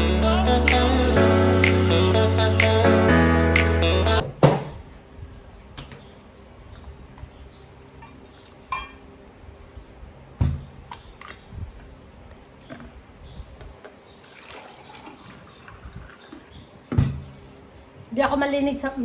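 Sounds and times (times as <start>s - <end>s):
glass clinking: 8.0s - 9.0s
water pouring into glass: 14.2s - 16.5s.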